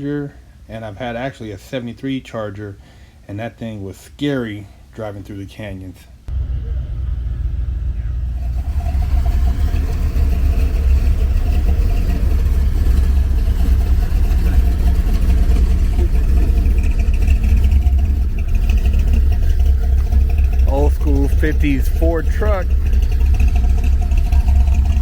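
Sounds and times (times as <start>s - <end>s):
car engine rumbling: 6.3s - 25.0s.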